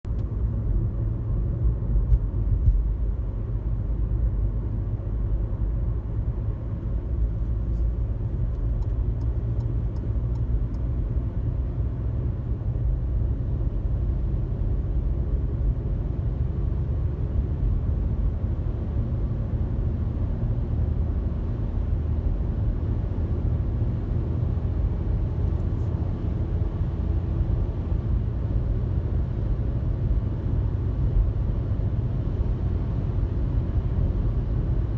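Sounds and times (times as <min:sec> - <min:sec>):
car cabin road rumble: 0:00.0 - 0:34.9
faint light ticks: 0:07.6 - 0:10.9.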